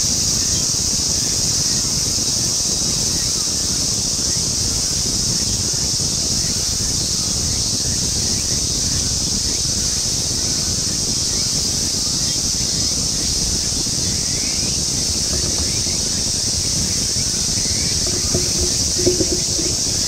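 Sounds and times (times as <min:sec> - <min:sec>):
wind rumbling on microphone: 0:03.1 - 0:20.0
small knock: 0:18.0 - 0:20.0.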